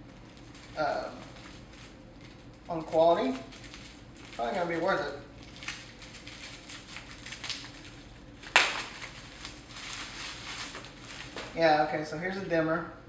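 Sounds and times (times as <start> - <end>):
plastic packaging crinkling: 0.0 - 11.8
sharp loud crackle: 8.4 - 9.5.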